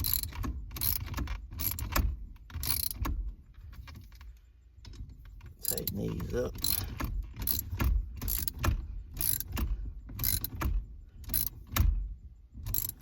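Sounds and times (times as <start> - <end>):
ratchet clicking: 0.0 - 3.1, 5.6 - 11.8, 12.6 - 13.0.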